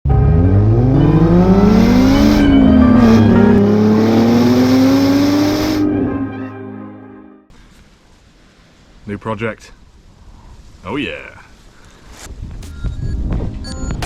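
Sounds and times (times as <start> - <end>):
vehicle engine accelerating hard: 0.1 - 6.4.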